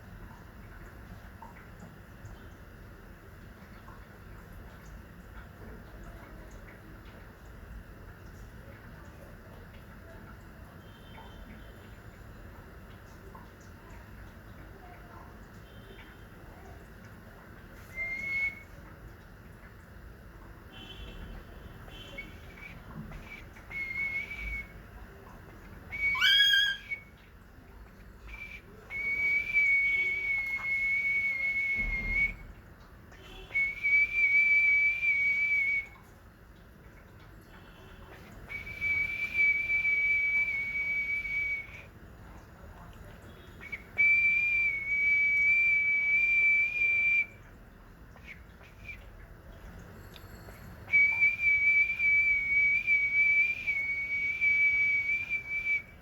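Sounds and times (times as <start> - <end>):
pet bird whistling: 17.9 - 18.6, 26.0 - 27.0.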